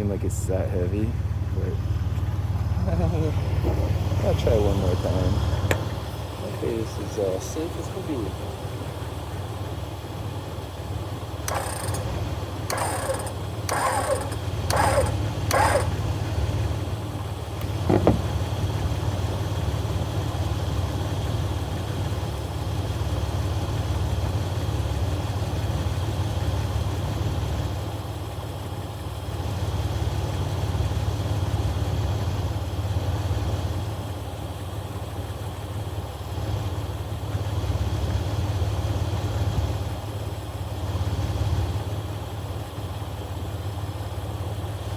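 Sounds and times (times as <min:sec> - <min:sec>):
car engine idling: 0:00.0 - 0:44.9
short sharp bursts: 0:11.5 - 0:16.0.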